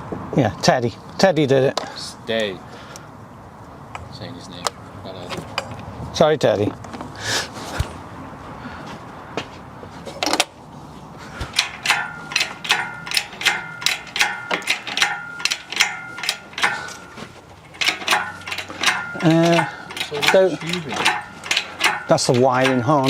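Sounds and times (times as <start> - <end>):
metal ratchet clicking: 11.5 - 23.0.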